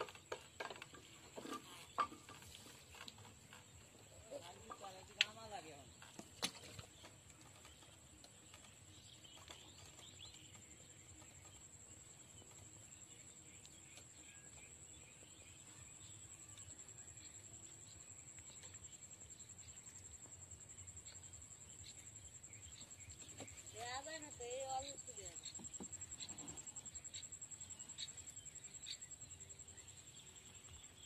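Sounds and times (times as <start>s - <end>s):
faint bird chirps: 9.0s - 31.0s.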